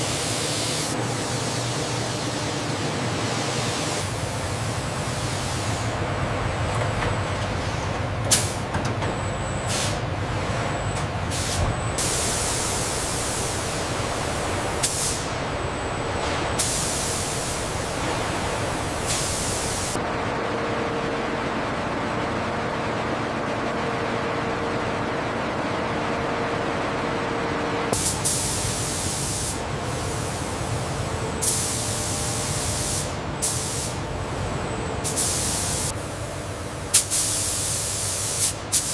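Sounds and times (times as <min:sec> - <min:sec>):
steady hum: 0:00.0 - 0:38.7
factory machinery noise: 0:00.0 - 0:38.9
air hissing: 0:11.3 - 0:15.5, 0:16.6 - 0:20.0, 0:31.4 - 0:34.0.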